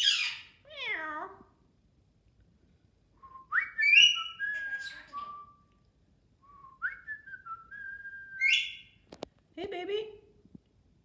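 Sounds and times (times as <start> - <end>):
parrot whistling: 3.5 - 5.6, 7.8 - 8.9.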